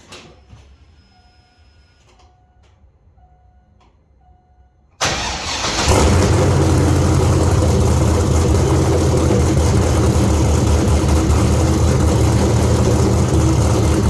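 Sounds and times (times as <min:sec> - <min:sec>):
car engine cranking and starting: 0:05.0 - 0:14.0
lumpy engine idle: 0:05.9 - 0:14.0.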